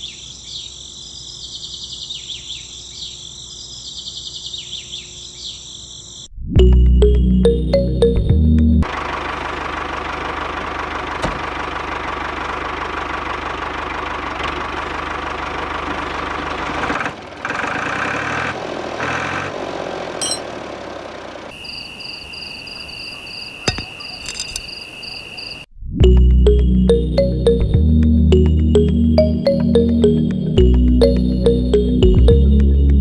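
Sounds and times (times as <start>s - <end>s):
steady high tone: 6.6s - 8.9s, 26.0s - 32.9s
pulsing higher tone: 26.0s - 33.0s.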